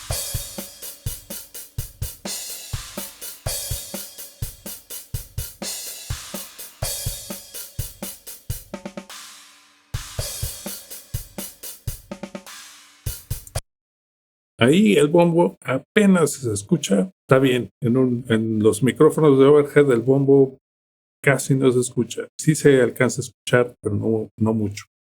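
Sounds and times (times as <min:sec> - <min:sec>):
cymbal crashes: 0:00.0 - 0:08.5, 0:09.1 - 0:13.6
hi-hat: 0:00.0 - 0:13.6
snare drum: 0:00.0 - 0:13.6.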